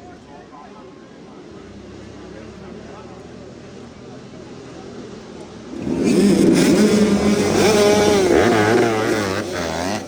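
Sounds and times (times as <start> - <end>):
dirt bike engines revving: 5.5 - 10.0.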